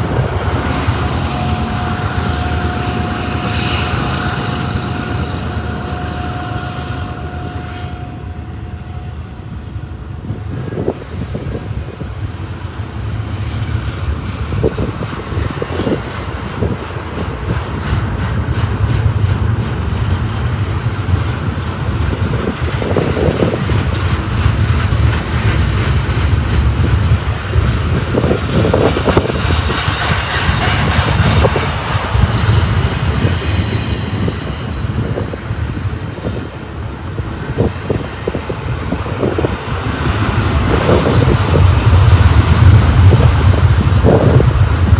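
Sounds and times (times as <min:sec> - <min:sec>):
freight train rumble: 0:00.0 - 0:44.9
wheels clicking over rail joints: 0:11.8 - 0:44.9.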